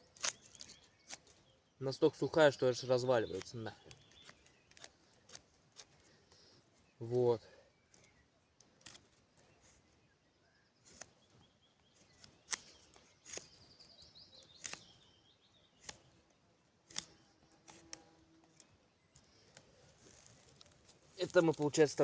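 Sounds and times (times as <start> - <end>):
dry wooden sticks clicking: 0.1 - 1.4, 3.3 - 6.1, 7.9 - 9.5, 10.9 - 11.4, 12.1 - 13.6, 14.5 - 14.9, 15.8 - 16.2, 16.9 - 21.8.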